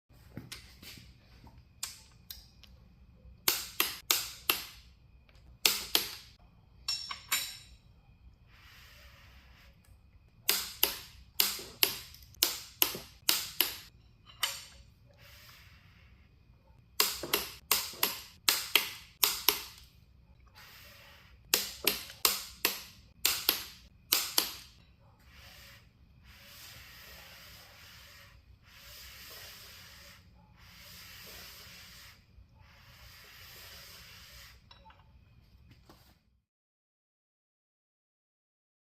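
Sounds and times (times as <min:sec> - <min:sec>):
ratchet wrench clicking: 0:17.0 - 0:19.9.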